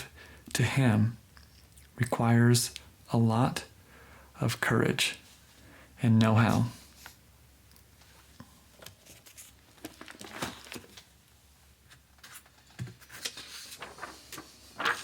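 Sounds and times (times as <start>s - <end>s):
rustling and crinkling: 8.0s - 15.0s.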